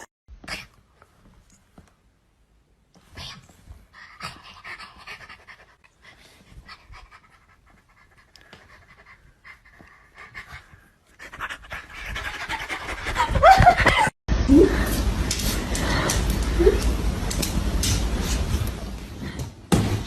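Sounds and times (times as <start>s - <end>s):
dog panting: 4.0s - 14.0s.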